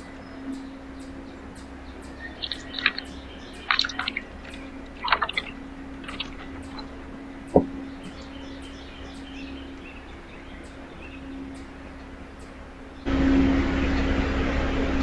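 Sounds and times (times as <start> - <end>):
steady low hum: 0.0 - 15.0
bird clicks and chips: 2.2 - 6.9.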